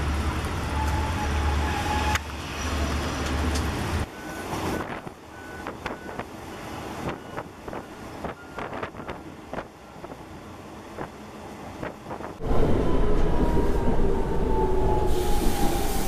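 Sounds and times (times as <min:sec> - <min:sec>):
diesel train rumbling: 0:00.0 - 0:16.0
sharp clicks of moving train: 0:00.2 - 0:12.4
wind hiss through train window: 0:04.5 - 0:12.4, 0:14.8 - 0:16.0.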